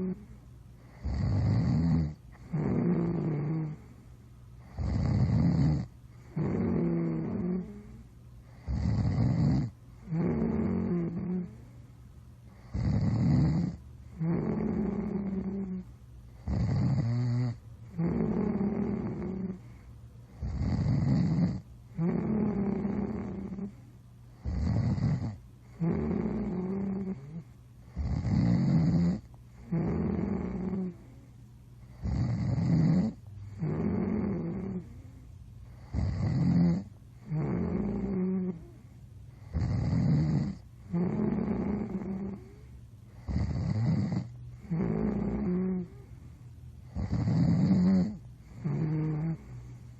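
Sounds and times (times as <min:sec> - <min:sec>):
person snoring: 0:00.0 - 0:04.0, 0:04.6 - 0:11.8, 0:12.5 - 0:23.8, 0:24.4 - 0:31.2, 0:31.9 - 0:38.8, 0:39.4 - 0:46.2, 0:46.8 - 0:49.8.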